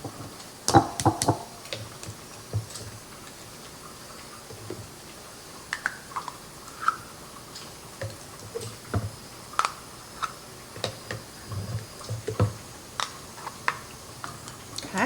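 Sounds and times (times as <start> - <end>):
spoon tapping bowl and cup: 0.7 - 1.5.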